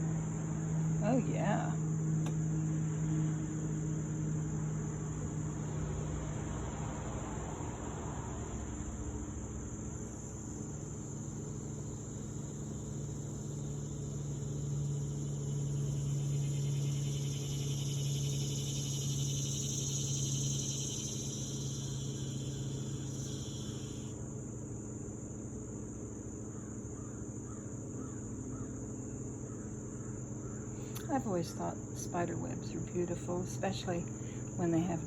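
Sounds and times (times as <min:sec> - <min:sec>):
insects chirring: 0:00.0 - 0:35.0
low steady hum: 0:00.0 - 0:35.0
insect buzzing: 0:10.3 - 0:24.2.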